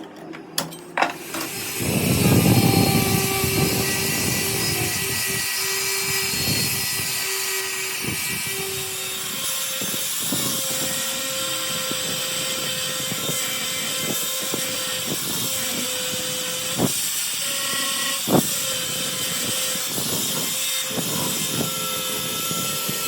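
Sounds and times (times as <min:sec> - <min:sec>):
power tool motor running: 0:01.2 - 0:23.0.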